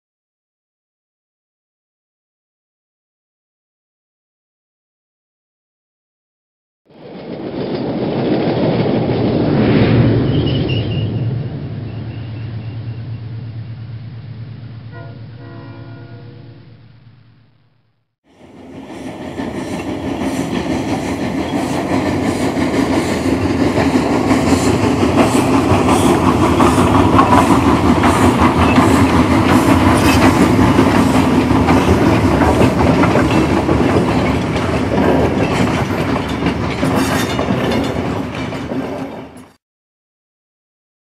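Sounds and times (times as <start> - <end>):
train wheels clacking over rail joints: 18.8 - 39.6.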